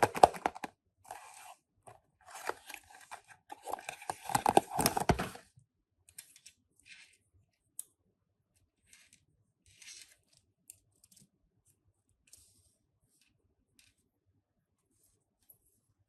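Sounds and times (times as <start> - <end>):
packaging crinkling and tearing: 0.0 - 0.7.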